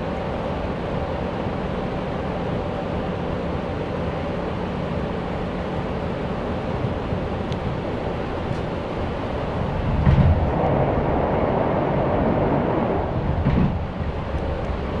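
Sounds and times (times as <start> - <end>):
train wheels rumbling on rails: 0.0 - 15.0
heavy train bumps: 6.6 - 15.0.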